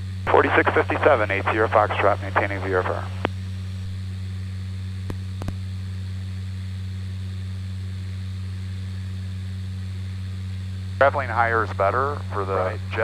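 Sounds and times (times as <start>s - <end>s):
turboprop engine drone: 0.0s - 13.0s
intercom hiss: 0.3s - 3.3s, 11.0s - 13.0s.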